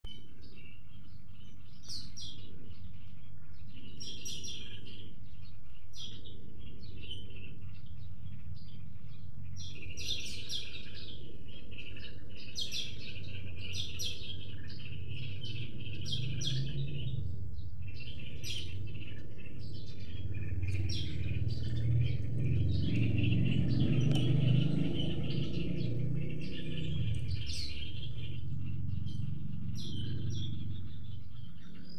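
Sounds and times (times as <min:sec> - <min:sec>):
songbirds chirping and singing: 0:00.0 - 0:31.9
low rumble: 0:14.6 - 0:31.9.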